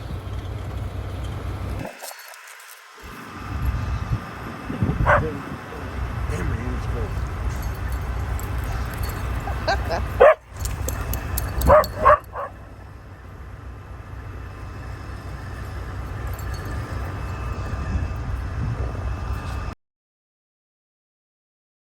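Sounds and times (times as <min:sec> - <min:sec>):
low steady rumble: 0:00.0 - 0:01.8, 0:03.0 - 0:19.8
dogs barking and yipping: 0:04.9 - 0:05.5, 0:07.3 - 0:13.0.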